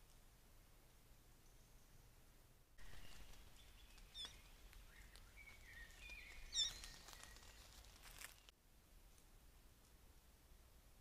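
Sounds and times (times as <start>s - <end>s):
high bird chirps: 2.8s - 7.8s
thin whistled bird notes: 2.8s - 8.5s.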